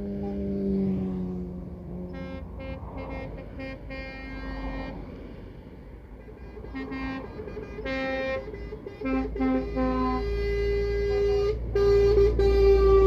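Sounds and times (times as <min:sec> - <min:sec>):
truck engine rumble: 0:00.0 - 0:13.0
truck horn blasts: 0:01.5 - 0:05.2, 0:06.0 - 0:13.0.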